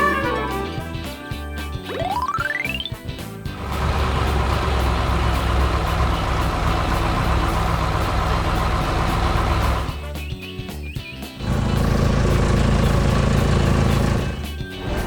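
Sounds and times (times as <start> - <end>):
heavy vehicle engine rumbling: 3.6 - 10.0, 11.4 - 15.0.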